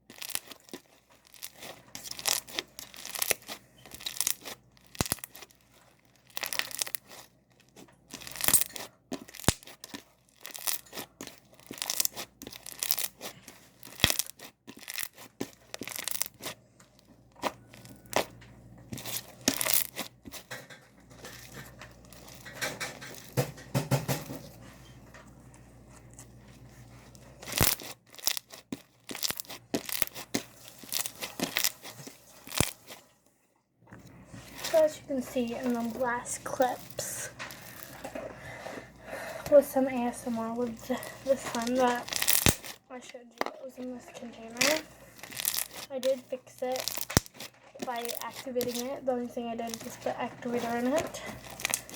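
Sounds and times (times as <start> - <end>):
slime squeezed popping and clicking: 0.1 - 5.4, 8.1 - 16.5, 41.5 - 42.8, 46.8 - 48.8.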